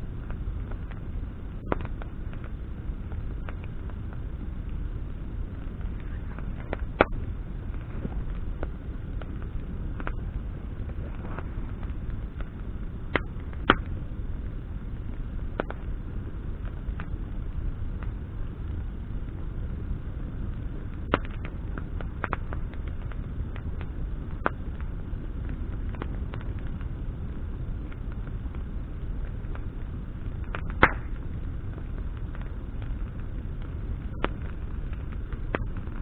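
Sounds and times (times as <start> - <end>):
bonfire crackling and popping: 0.0 - 36.0
low fire rumble: 0.0 - 36.0.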